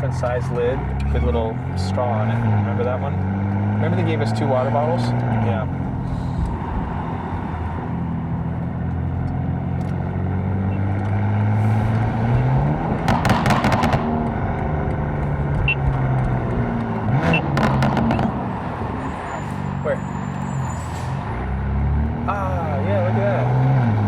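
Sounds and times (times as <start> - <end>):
exhaust crackles: 0.0 - 21.0
car engine accelerating: 0.0 - 24.0.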